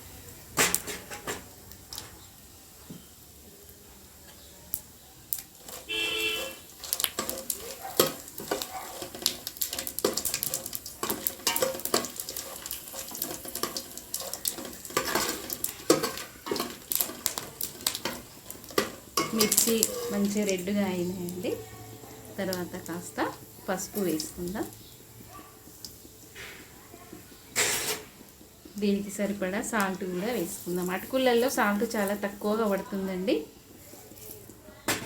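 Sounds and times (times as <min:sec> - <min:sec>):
spices sizzling in oil: 0:00.0 - 0:35.0
metal spoon scraping a pan: 0:00.6 - 0:02.3, 0:05.4 - 0:24.9, 0:26.3 - 0:32.9.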